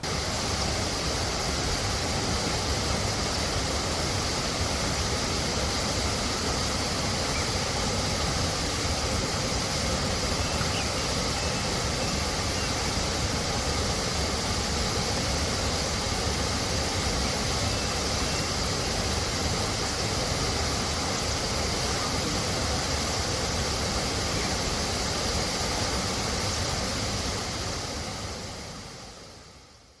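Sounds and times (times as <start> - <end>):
waterfall rushing over rocks: 0.0 - 30.0
faint bird chirps: 7.2 - 7.6, 10.3 - 12.8.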